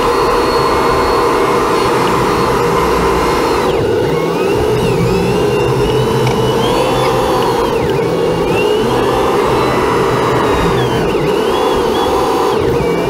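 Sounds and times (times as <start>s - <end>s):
motor running with whine: 0.0s - 13.0s.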